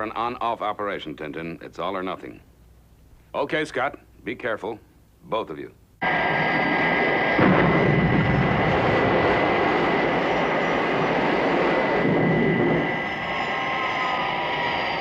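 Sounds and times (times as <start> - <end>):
jet engine roar: 6.0 - 15.0.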